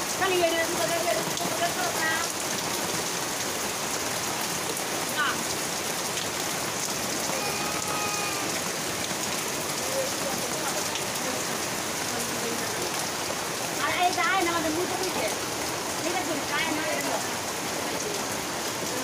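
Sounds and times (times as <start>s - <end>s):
rain on metal roofs and leaves: 0.0s - 19.0s
water streaming off roof: 0.0s - 19.0s.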